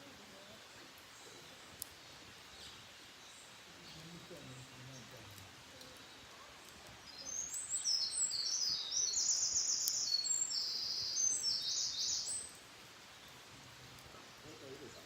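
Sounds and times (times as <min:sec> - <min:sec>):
songbird singing rapid trills: 0:06.9 - 0:15.0.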